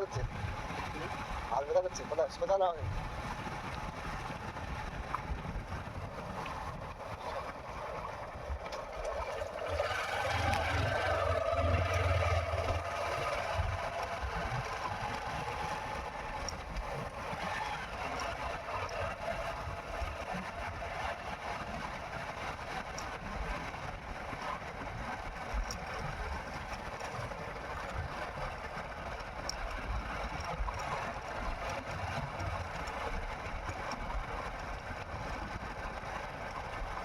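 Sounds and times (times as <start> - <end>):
motorcycle engine droning: 8.8 - 23.6.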